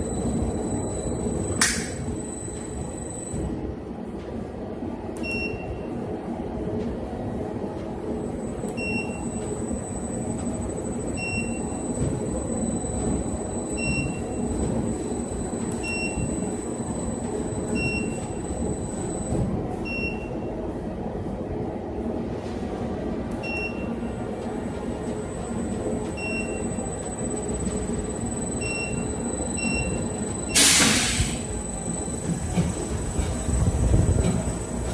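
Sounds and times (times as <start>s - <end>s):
washing machine rumbling: 31.5s - 34.9s.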